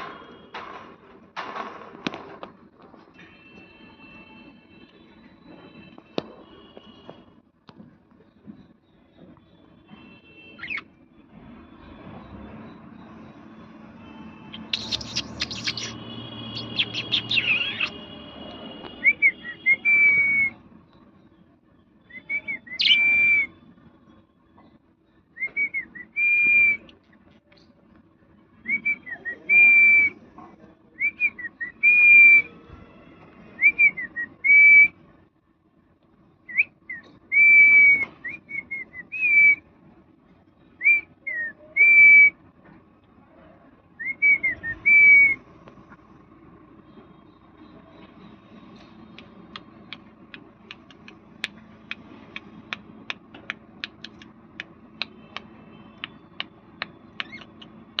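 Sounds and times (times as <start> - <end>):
parrot whistling: 14.5 - 18.0, 22.1 - 23.5, 56.0 - 58.0.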